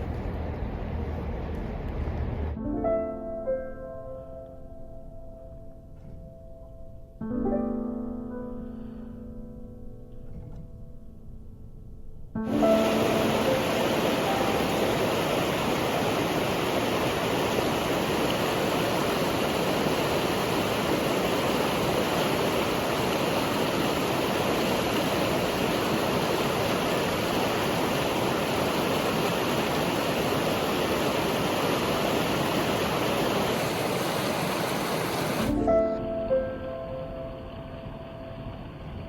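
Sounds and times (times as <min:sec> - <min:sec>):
river water rushing: 0:12.4 - 0:39.0.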